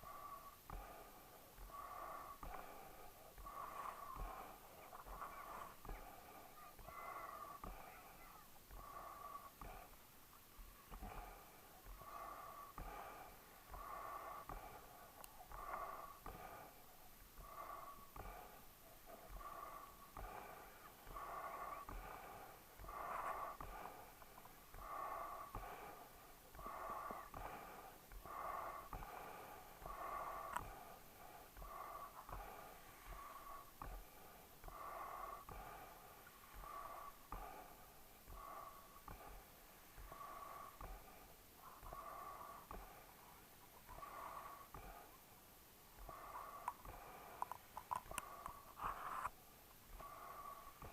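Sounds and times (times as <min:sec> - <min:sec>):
dog breathing wheezily: 0:10.9 - 0:50.9.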